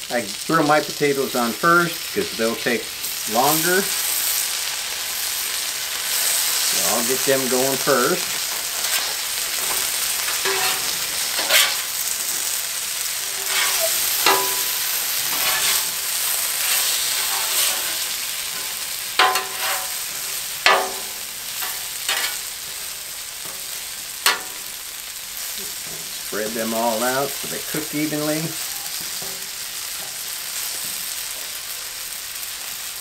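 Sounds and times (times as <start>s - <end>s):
potatoes sizzling on griddle: 0.0s - 33.0s
metal spatula scraping griddle: 6.1s - 24.8s.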